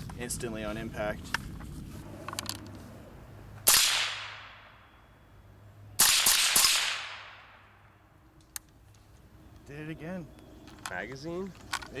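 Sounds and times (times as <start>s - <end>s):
suppressed rifle shots: 3.6s - 4.7s, 6.0s - 7.5s
gunshot echo: 3.7s - 4.8s, 6.0s - 7.6s.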